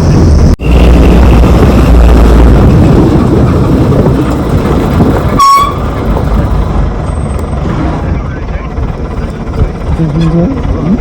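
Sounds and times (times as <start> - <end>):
vehicle rumbling on rough road: 0.0 - 11.0.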